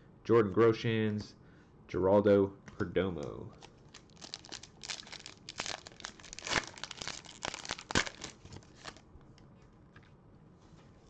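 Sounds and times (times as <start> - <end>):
foil wrapper crinkling and tearing: 3.6 - 9.0.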